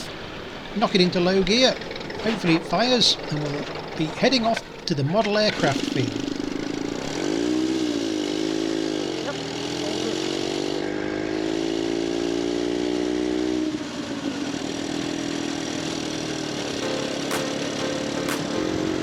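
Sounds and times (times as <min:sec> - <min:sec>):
motorcycle engine running: 0:05.7 - 0:12.0.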